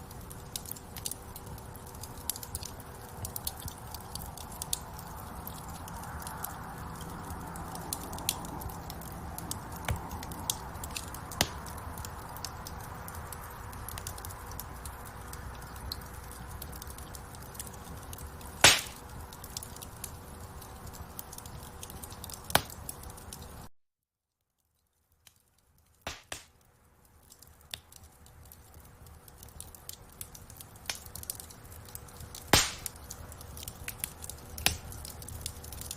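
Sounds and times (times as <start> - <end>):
wood fire crackling: 0.0 - 23.7, 24.6 - 35.9
loud pop from fire: 18.6 - 19.0, 26.1 - 26.5, 32.5 - 32.9.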